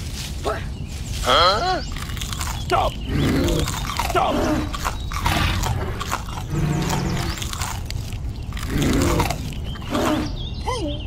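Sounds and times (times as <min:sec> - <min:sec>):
crunching bites: 0:01.3 - 0:10.4
dinosaur growling: 0:03.0 - 0:07.9, 0:08.5 - 0:10.4.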